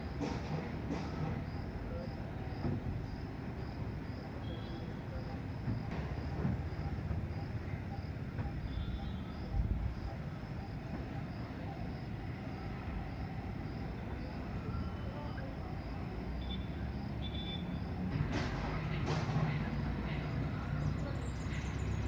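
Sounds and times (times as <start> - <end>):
insect chirping: 1.4 - 18.1.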